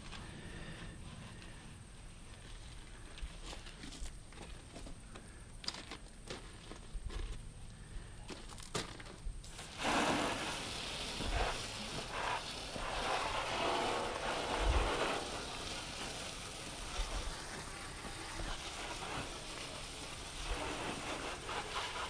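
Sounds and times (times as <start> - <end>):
pressure washer spray hissing: 9.4 - 22.0.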